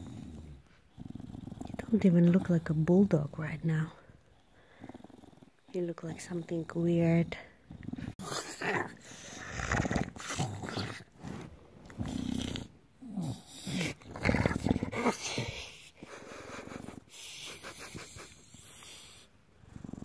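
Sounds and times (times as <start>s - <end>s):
dog making throaty noises: 7.0s - 19.1s.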